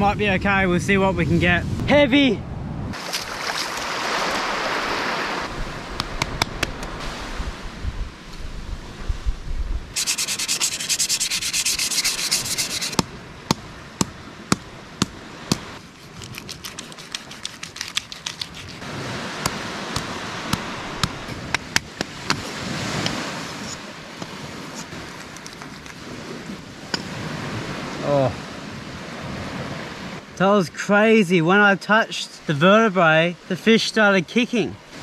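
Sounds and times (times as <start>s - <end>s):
knife scraping fish: 10.0s - 13.0s, 15.8s - 18.8s, 24.7s - 26.0s.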